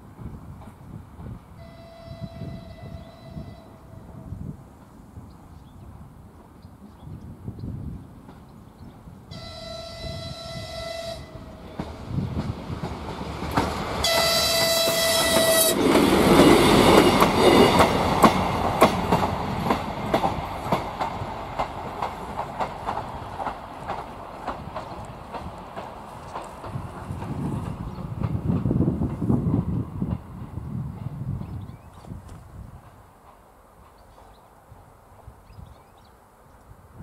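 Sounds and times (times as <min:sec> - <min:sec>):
train horn blasts: 0:01.6 - 0:04.3, 0:09.3 - 0:11.7, 0:14.0 - 0:16.0
diesel railcar engine passing: 0:08.0 - 0:31.9
wheels clicking over rail joints: 0:11.6 - 0:31.2.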